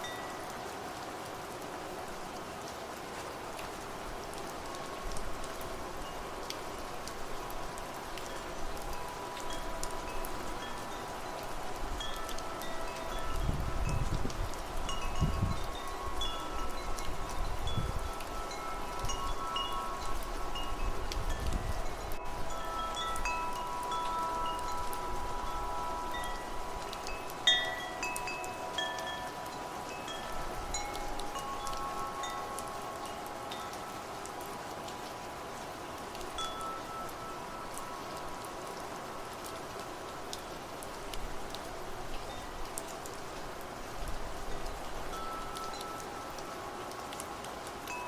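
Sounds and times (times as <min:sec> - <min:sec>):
wind chimes ringing: 0:00.0 - 0:00.6, 0:07.4 - 0:39.3, 0:42.1 - 0:48.0
wind gusts rumbling: 0:10.3 - 0:23.6.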